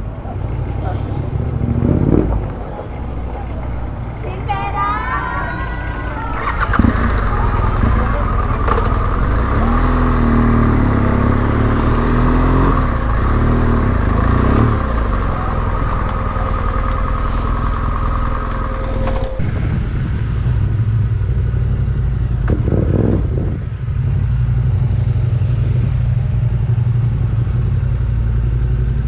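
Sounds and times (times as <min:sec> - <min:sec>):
motorcycle engine revving: 0:00.0 - 0:19.6.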